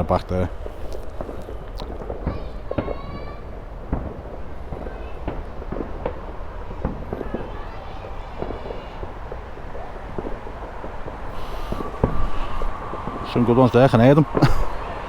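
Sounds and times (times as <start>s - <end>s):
distant fireworks bangs: 0.0s - 15.0s
steady low rumble: 9.2s - 15.0s.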